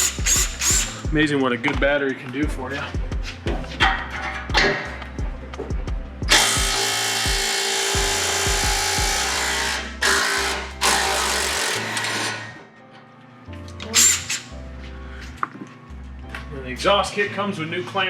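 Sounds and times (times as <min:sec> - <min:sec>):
impact wrench running: 0:00.0 - 0:01.1, 0:06.3 - 0:12.6.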